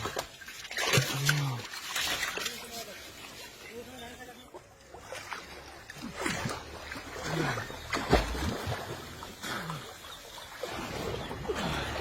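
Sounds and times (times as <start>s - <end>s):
water splashing and dribbling: 0.0s - 12.0s.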